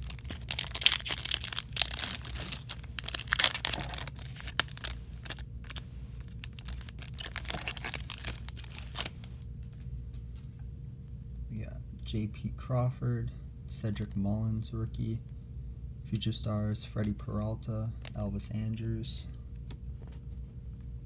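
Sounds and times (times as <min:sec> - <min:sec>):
wrapper tearing and crinkling: 0:00.0 - 0:09.4
cards rustling and clicking: 0:00.0 - 0:10.5.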